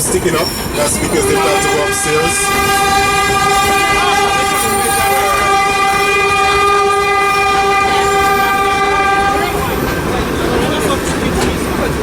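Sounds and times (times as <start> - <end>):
train cars rumbling on track: 0.0 - 12.0
train horn blowing: 0.7 - 9.8.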